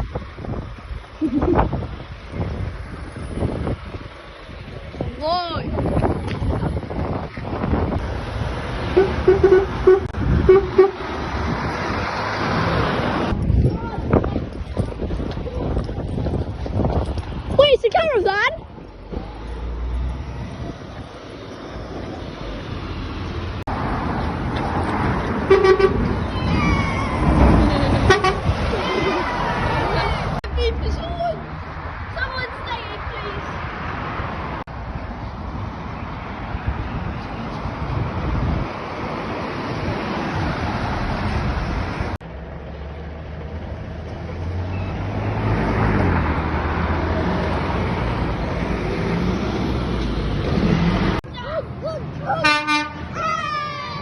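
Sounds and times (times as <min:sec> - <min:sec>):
wind on microphone: 0:00.0 - 0:17.8, 0:20.2 - 0:21.2, 0:35.4 - 0:42.2
road traffic passing: 0:00.0 - 0:54.0
vehicle passing close: 0:01.3 - 0:13.5, 0:19.0 - 0:51.2
lorry engine hum passing: 0:07.7 - 0:13.4, 0:38.0 - 0:51.2.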